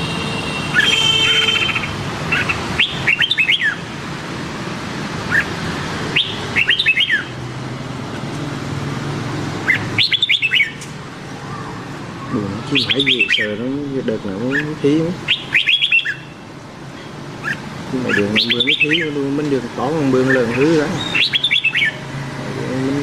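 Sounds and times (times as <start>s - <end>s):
bulbul whistled song: 2.8s - 3.8s, 6.1s - 7.3s, 9.7s - 10.8s, 12.7s - 13.6s, 15.3s - 16.4s, 17.4s - 19.2s, 20.2s - 22.0s.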